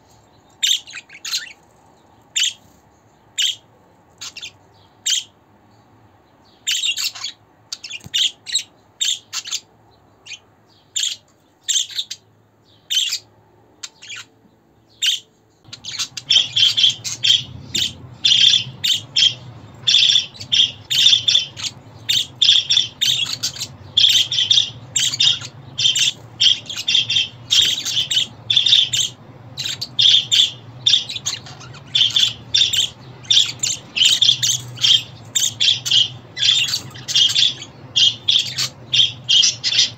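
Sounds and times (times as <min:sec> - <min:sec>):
budgerigars chirping: 0:00.6 - 0:01.6, 0:02.3 - 0:02.8, 0:03.4 - 0:05.4, 0:06.5 - 0:14.3, 0:14.9 - 0:39.9
low steady hum: 0:15.6 - 0:39.9.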